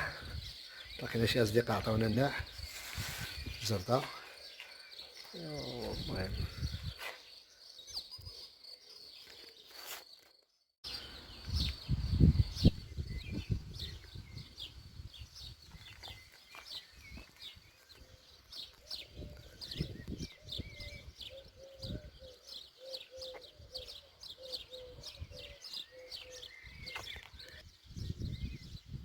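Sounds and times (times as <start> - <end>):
birds chirping: 0.0 - 29.0
low repeated bird call: 15.7 - 27.7.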